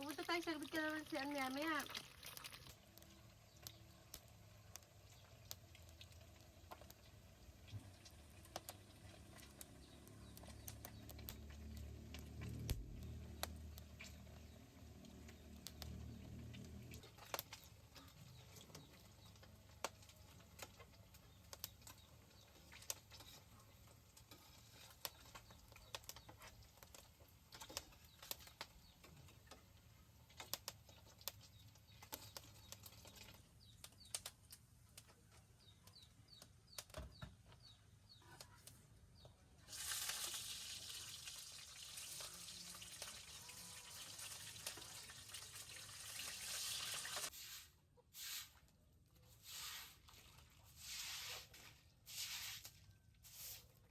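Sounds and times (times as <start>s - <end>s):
water running: 0.0s - 2.8s, 39.7s - 47.3s.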